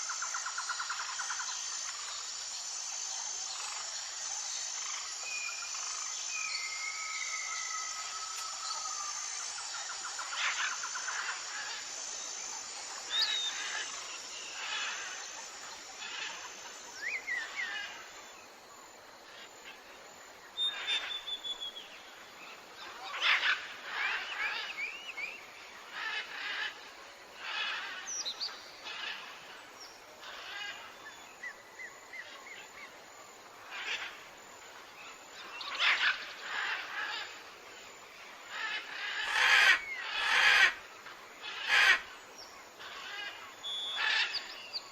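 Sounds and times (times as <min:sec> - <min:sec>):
birds calling and chirping: 0:35.1 - 0:37.5, 0:38.5 - 0:44.9.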